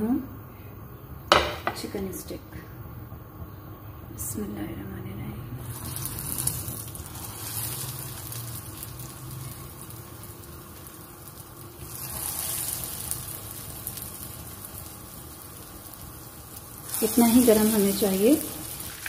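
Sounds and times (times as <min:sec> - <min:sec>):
chicken sizzling in hot oil: 0:05.6 - 0:19.0.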